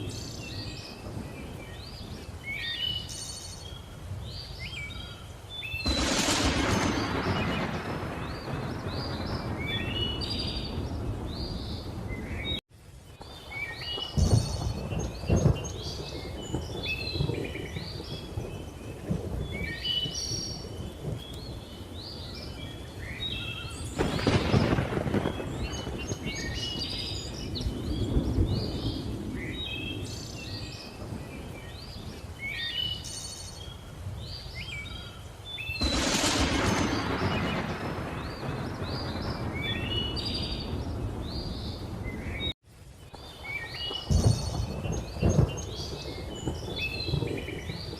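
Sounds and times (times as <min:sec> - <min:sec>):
birds chirping: 0:00.0 - 0:12.6, 0:13.2 - 0:47.9
thunder rolling: 0:05.8 - 0:12.6, 0:13.2 - 0:32.2, 0:35.8 - 0:42.5, 0:43.9 - 0:47.9.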